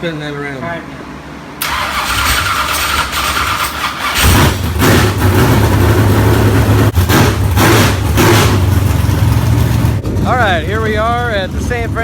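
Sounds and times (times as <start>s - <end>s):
engine cranking on starter: 1.6s - 5.6s
engine throttle blips: 1.6s - 12.0s.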